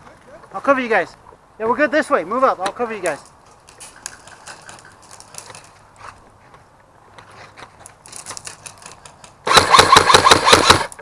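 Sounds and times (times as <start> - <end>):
airsoft gun firing burst: 9.4 - 10.9.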